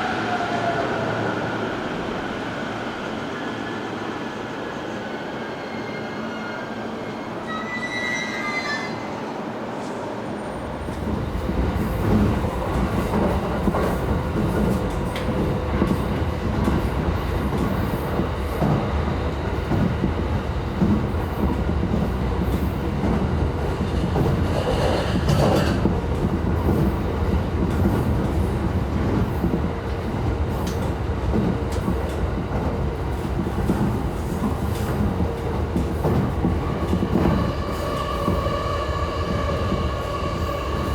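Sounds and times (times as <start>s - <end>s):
train rumbling on rails: 8.7s - 40.9s.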